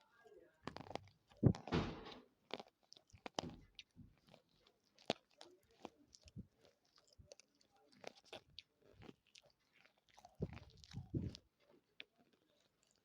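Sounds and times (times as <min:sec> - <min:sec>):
person chewing dry clay: 0:00.0 - 0:13.0.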